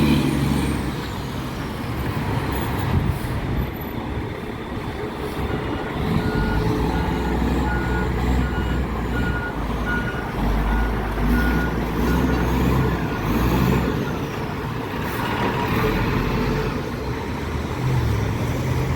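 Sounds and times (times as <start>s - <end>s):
diesel engine running: 0.0s - 18.9s
reversing alarm beeping: 5.4s - 13.4s.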